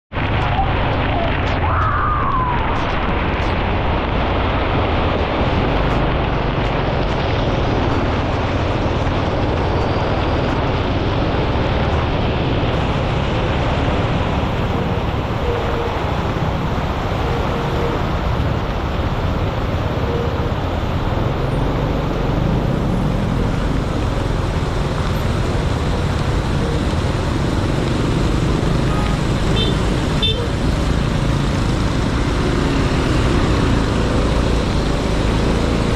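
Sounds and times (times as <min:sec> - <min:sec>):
surrounding traffic: 0:00.1 - 0:35.9
motorcycle engine: 0:05.3 - 0:35.9.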